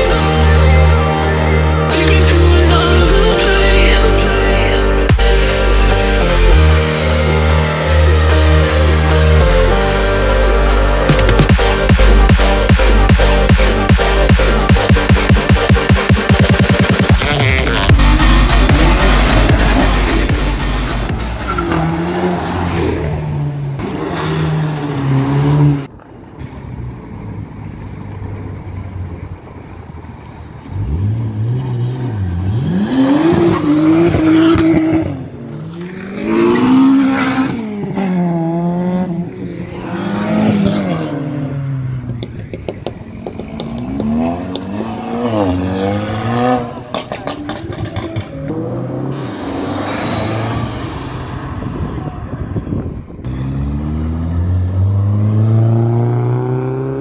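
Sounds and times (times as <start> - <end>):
loud dense sound: 0.0 - 22.3
car engines revving hard: 0.0 - 26.0, 30.6 - 57.0.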